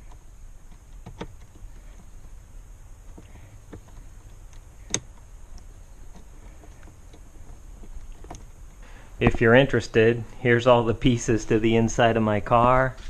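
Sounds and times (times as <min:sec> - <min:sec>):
car interior parts clicking: 0:00.0 - 0:02.4, 0:03.0 - 0:08.6
low steady hum: 0:00.0 - 0:13.0.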